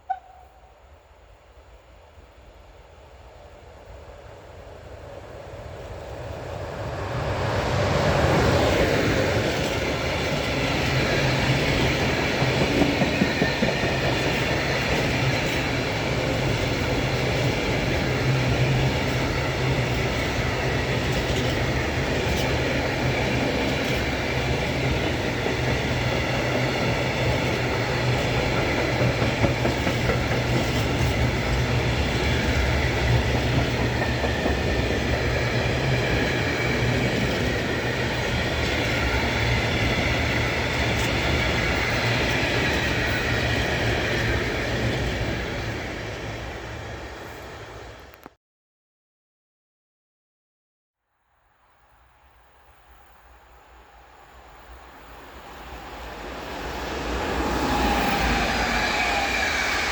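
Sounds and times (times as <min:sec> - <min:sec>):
train wheels clattering: 0:08.2 - 0:46.2.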